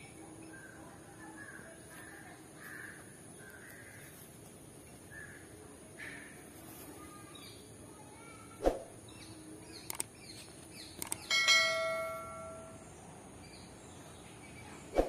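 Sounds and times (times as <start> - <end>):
sharp clicks: 9.7 - 10.2, 10.8 - 11.3
bell ringing: 11.3 - 12.8.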